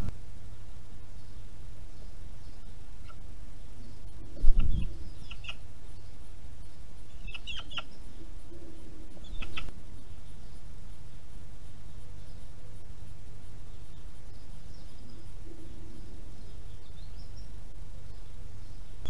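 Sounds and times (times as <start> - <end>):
short sharp bird calls: 7.2 - 8.0.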